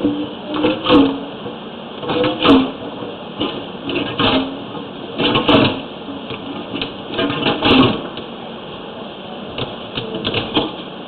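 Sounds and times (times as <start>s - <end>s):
cable rattling in drain pipe: 0.5s - 8.2s.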